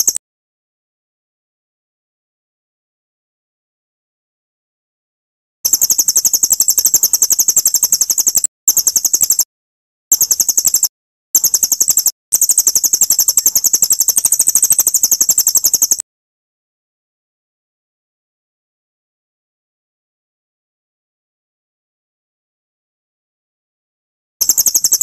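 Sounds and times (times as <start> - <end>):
songbird trill of high chirps: 0.0 - 0.2, 5.7 - 9.5, 10.1 - 16.0, 24.4 - 25.0.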